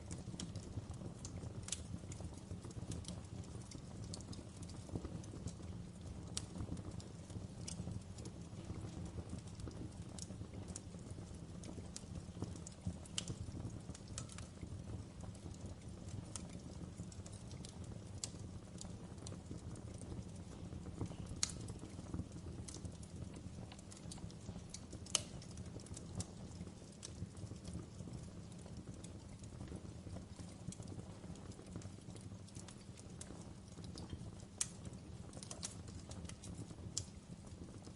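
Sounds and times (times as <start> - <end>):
fire low rumble: 0.0 - 37.9
wood fire popping and snapping: 0.0 - 37.9.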